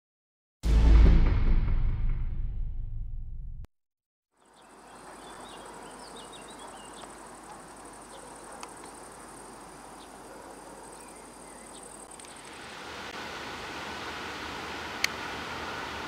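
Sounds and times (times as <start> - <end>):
bird chirps: 4.4 - 7.2
insects trilling: 4.4 - 13.1.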